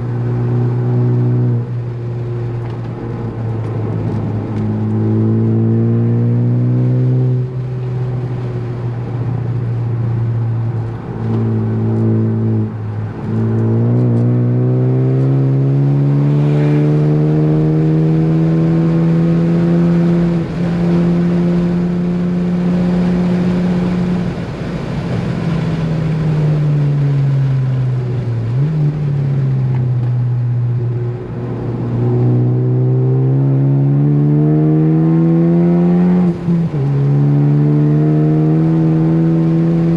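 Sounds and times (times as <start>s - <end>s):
turbocharged car engine revving: 3.3s - 7.8s, 10.8s - 24.4s, 31.2s - 39.9s.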